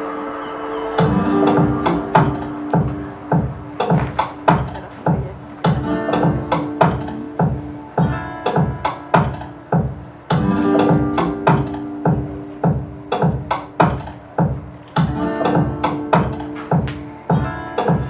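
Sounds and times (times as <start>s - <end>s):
held ringing pitched notes: 0.0s - 9.3s
drum strokes: 1.0s - 18.0s.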